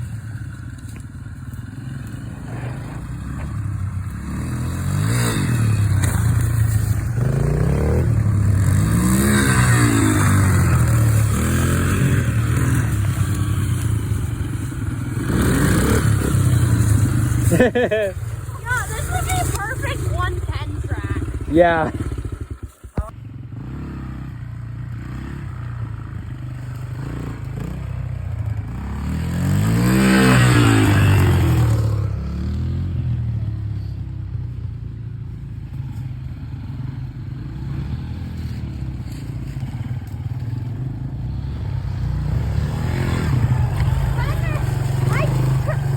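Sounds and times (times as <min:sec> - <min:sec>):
dirt bike engine passing: 0:00.0 - 0:34.6, 0:35.3 - 0:45.9.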